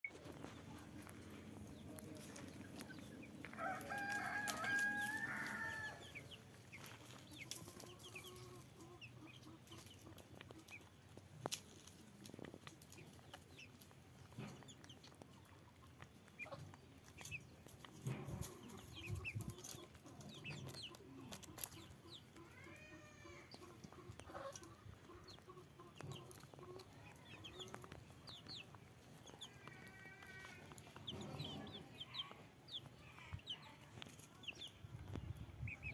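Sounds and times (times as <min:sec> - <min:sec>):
chickens clucking: 0:00.1 - 0:35.9
rooster crowing: 0:03.5 - 0:06.1.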